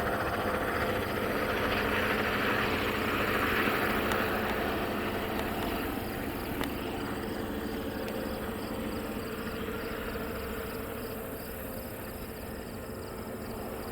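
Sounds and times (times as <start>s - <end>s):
passing diesel train rumble: 0.0s - 13.9s
insects chirping: 2.8s - 13.9s.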